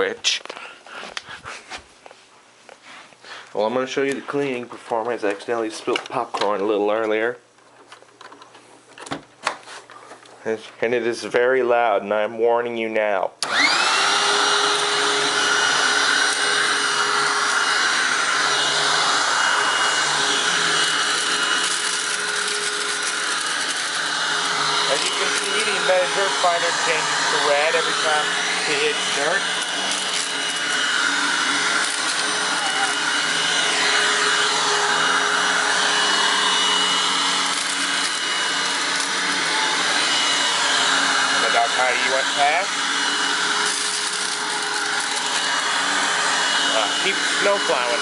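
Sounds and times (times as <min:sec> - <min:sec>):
upright vacuum running: 0:13.4 - 0:48.0.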